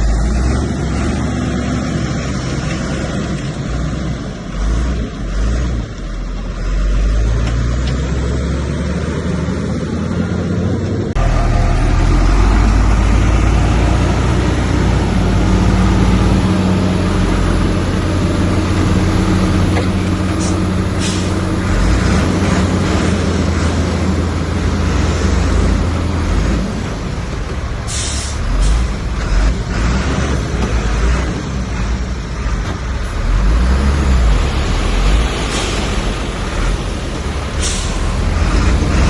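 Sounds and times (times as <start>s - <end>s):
heavy diesel engine running: 0.0s - 39.0s
short air hisses: 20.4s - 21.4s, 27.9s - 28.4s, 37.6s - 38.2s.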